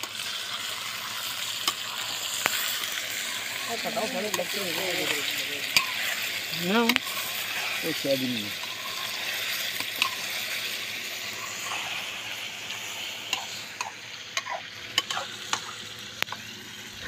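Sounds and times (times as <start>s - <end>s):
chicken sizzling in a pan: 0.0s - 17.0s
metal spatula stirring: 3.6s - 10.4s.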